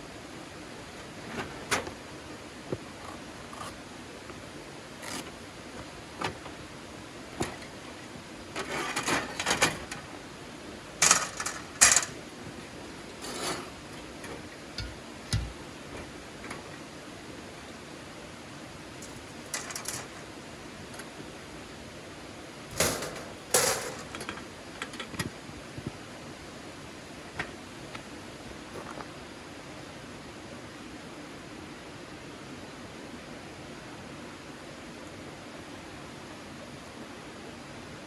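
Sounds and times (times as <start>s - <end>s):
steady hiss: 0.0s - 29.7s
irregular knocks and clicks: 13.5s - 16.8s.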